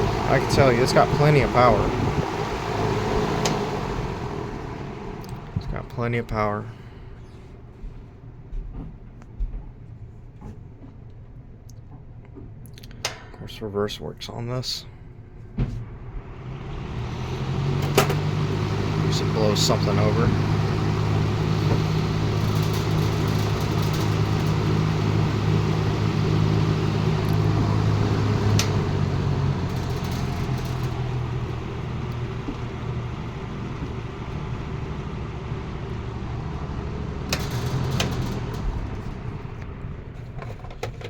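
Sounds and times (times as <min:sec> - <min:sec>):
box fan motor hum: 0:00.0 - 0:08.5, 0:15.1 - 0:41.0.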